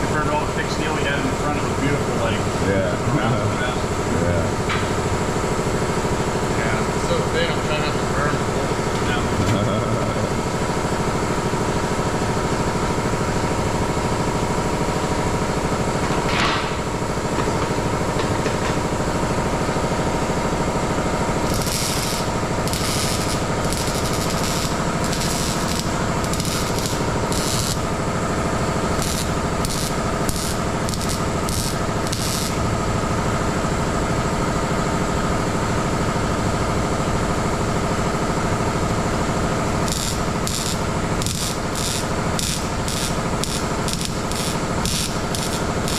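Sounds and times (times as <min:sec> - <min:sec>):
steady shop hum: 0:00.0 - 0:45.9
welding crackle bursts: 0:21.1 - 0:33.2, 0:39.7 - 0:45.9.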